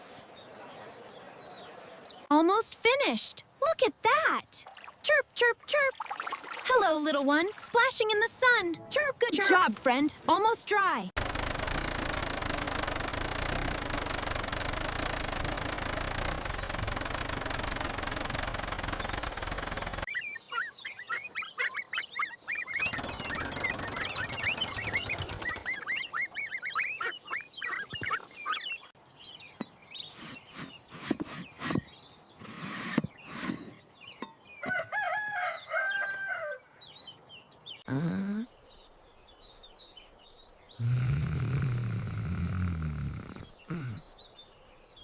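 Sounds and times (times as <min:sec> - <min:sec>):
scattered clicks: 0:11.2 - 0:20.1
chicks chirping: 0:18.8 - 0:28.6
rooster crowing: 0:34.6 - 0:36.7.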